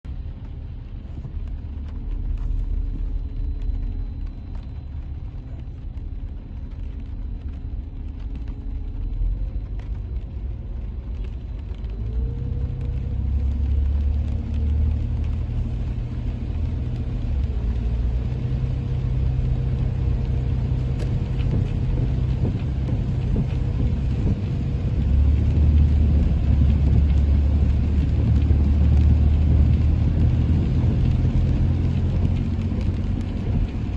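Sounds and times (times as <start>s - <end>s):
car driving rumble: 0.0s - 33.9s
engine hum: 0.0s - 33.9s.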